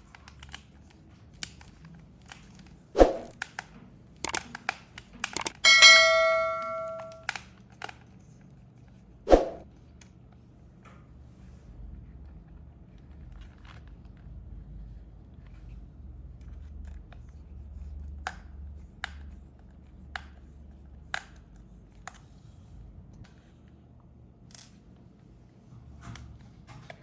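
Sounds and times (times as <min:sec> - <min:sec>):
sharp plastic clicks: 0:00.0 - 0:05.7
low steady hum: 0:05.5 - 0:07.3.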